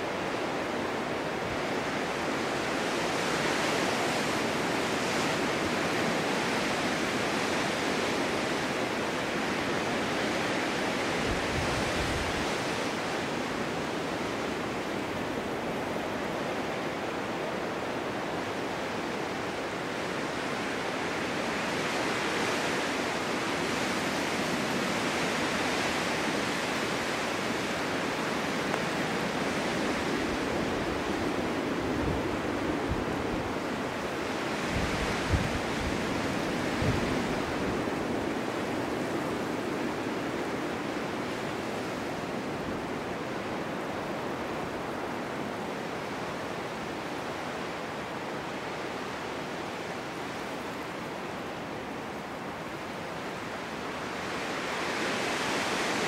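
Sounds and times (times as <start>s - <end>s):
gusting snowstorm wind: 0.0s - 56.0s.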